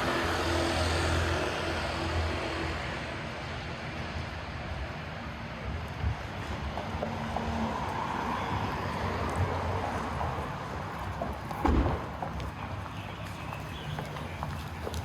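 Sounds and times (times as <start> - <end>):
short low thump: 11.6 - 12.2.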